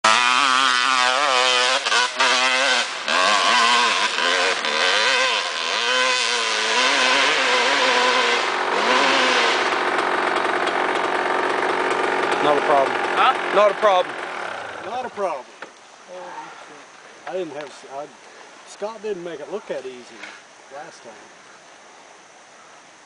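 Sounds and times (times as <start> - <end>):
dirt bike engine revving: 0.0 - 15.5.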